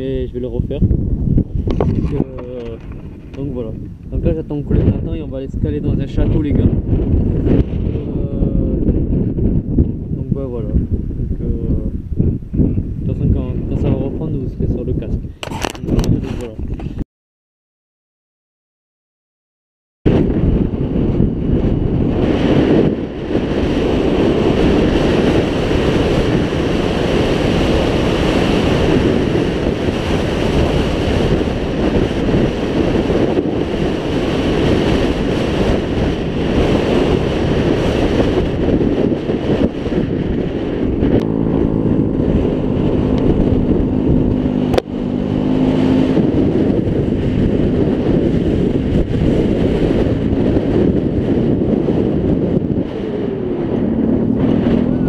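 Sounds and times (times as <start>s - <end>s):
wind buffeting camera: 0.0s - 17.0s, 20.1s - 55.0s
scooter engine humming: 21.5s - 55.0s.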